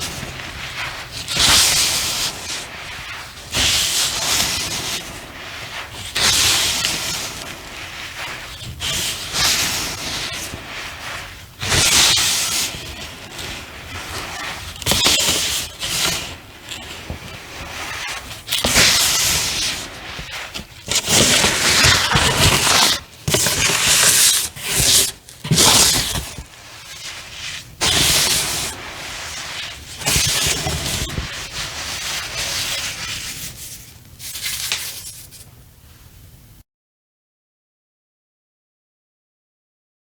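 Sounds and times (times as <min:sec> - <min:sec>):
cornstarch squeaky crunching: 0:11.6 - 0:32.6.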